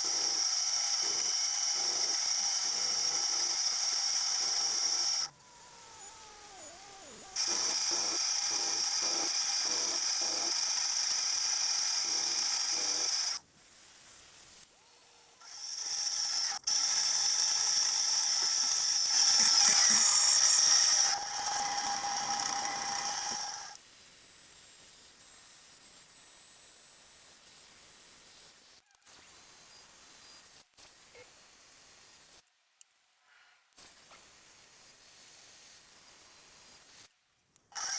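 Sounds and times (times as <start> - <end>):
machine tool whining: 0.0 - 13.4, 15.4 - 23.8.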